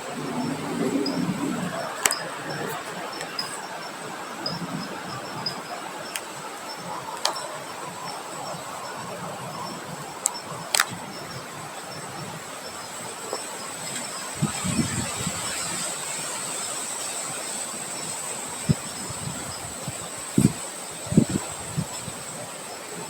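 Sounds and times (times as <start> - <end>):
wind thumps on microphone: 0.0 - 5.7, 13.2 - 15.9, 18.6 - 22.2
sharp clicks: 10.2 - 11.0.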